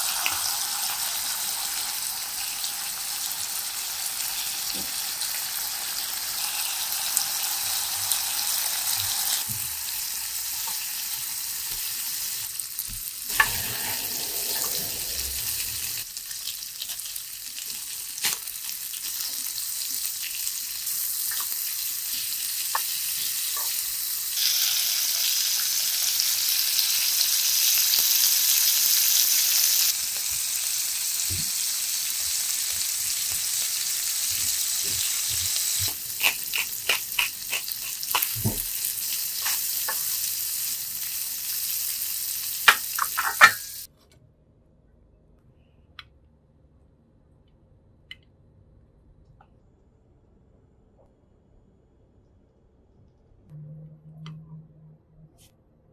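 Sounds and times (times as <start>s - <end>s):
gizzards sizzling in a frying pan: 0.0s - 43.9s.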